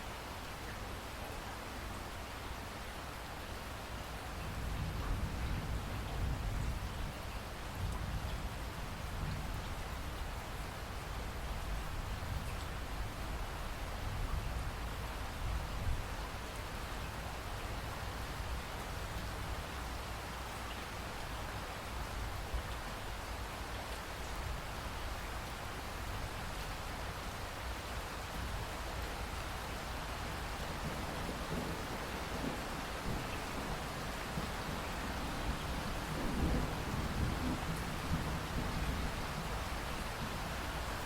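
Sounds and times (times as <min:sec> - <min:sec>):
steady rain: 0:00.0 - 0:41.0
raindrops dripping: 0:07.4 - 0:13.6.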